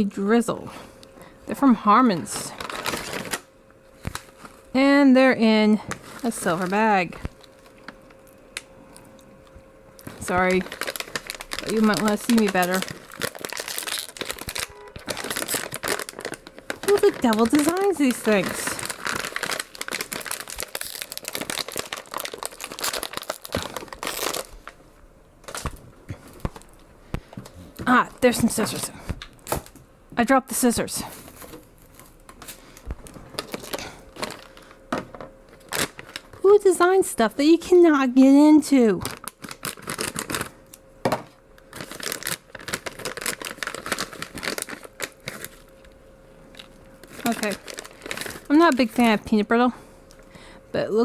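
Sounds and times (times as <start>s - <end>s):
candy bag crinkling: 2.1s - 4.8s, 5.8s - 9.3s, 10.0s - 24.8s, 25.4s - 26.8s, 31.2s - 34.9s, 35.5s - 37.2s, 38.9s - 40.8s, 41.6s - 49.6s.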